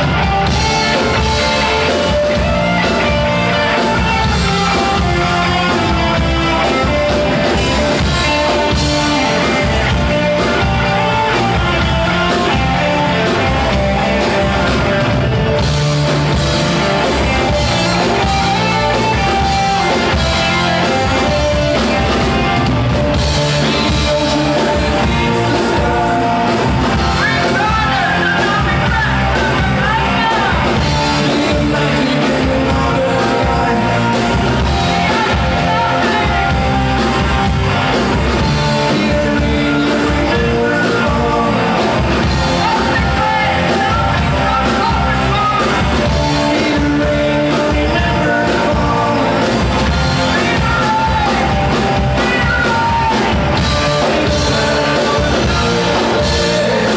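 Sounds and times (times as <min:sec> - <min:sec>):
drums: 0:00.0 - 0:56.9
electric guitars: 0:00.0 - 0:56.9
person singing and shouting: 0:23.5 - 0:37.2, 0:38.0 - 0:56.9.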